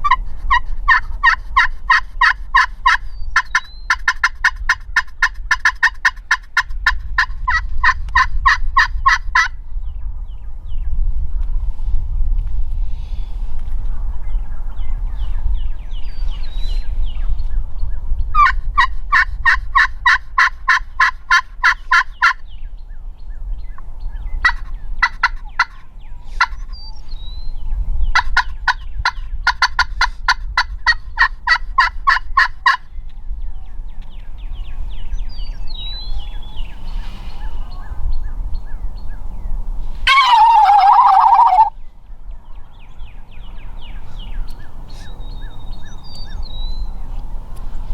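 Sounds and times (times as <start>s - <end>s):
turkey calling: 0.0s - 9.5s, 18.4s - 22.4s, 24.4s - 26.7s, 28.2s - 32.8s, 40.0s - 41.8s
low wind rumble: 0.0s - 47.9s.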